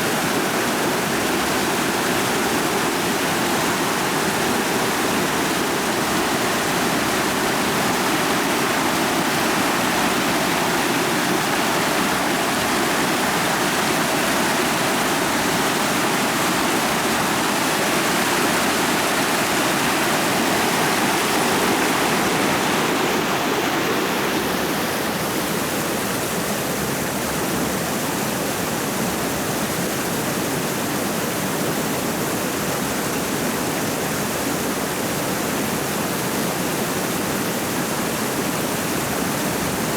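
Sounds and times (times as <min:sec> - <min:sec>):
creek rushing over stones: 0:00.0 - 0:39.9.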